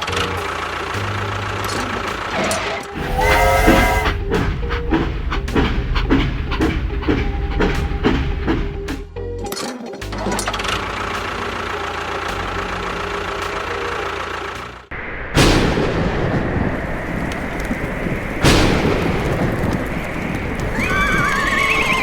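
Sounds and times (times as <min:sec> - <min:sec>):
loud bangs with rumbling: 0:15.4 - 0:20.8.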